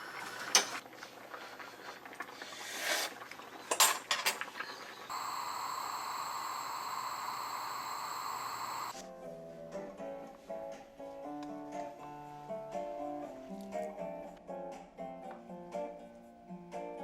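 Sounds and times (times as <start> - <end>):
steady hiss: 5.1 - 9.0.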